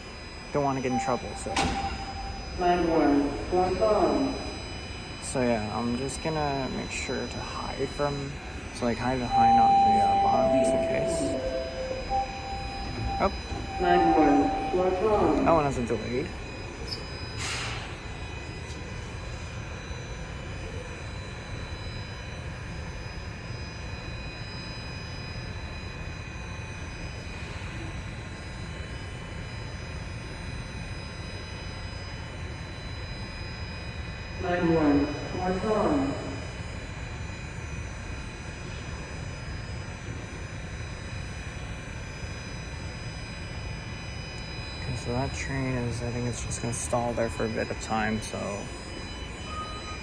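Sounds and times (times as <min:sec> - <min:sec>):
high whining tones: 0:00.0 - 0:21.9, 0:43.5 - 0:50.0
subway train hum: 0:00.0 - 0:50.0
thin high tones: 0:08.8 - 0:16.2, 0:44.9 - 0:50.0.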